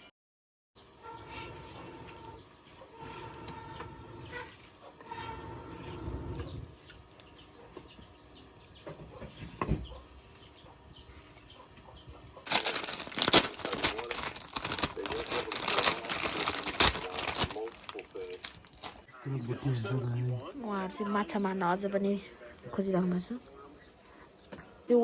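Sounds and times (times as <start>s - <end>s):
plastic packet crinkling: 12.4s - 19.1s.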